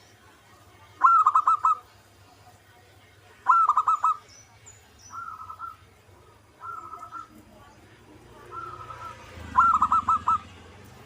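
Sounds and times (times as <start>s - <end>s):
dove cooing: 1.0s - 1.9s, 3.4s - 4.2s, 5.1s - 7.5s, 8.3s - 10.7s.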